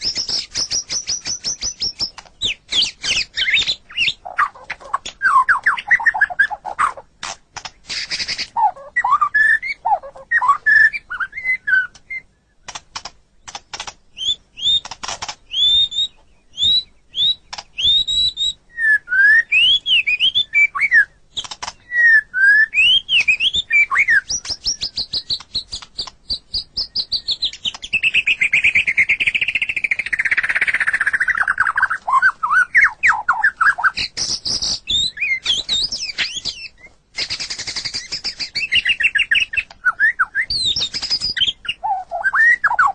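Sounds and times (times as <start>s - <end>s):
songbird singing whistled notes: 0.0s - 7.1s, 7.8s - 12.8s, 13.4s - 42.9s.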